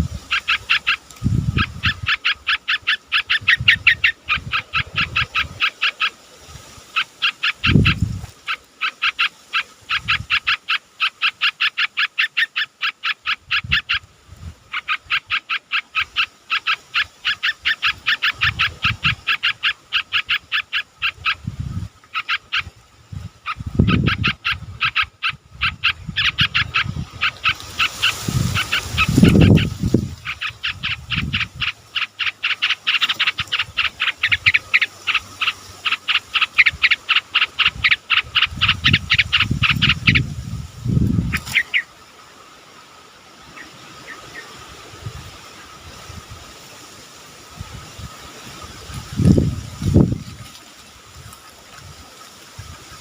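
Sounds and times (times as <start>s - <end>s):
bulbuls chirping rapidly: 0.0s - 42.3s.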